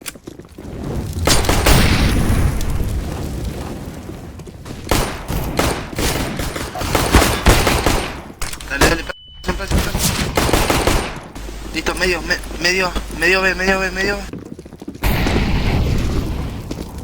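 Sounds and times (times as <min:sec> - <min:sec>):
pistol shots: 0:04.9 - 0:09.1, 0:09.7 - 0:11.5.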